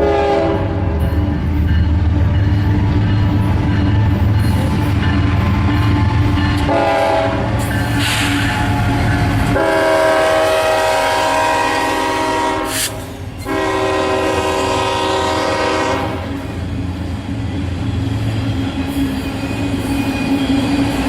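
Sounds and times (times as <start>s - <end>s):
locomotive air horn blasts: 0.0s - 0.9s, 6.6s - 16.4s
train rumbling past: 0.0s - 21.0s.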